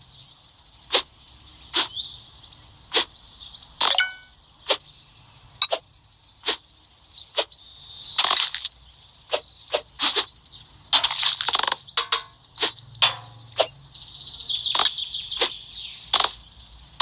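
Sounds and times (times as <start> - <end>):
birds chirping: 0.0 - 17.0
blade slicing: 9.3 - 10.3.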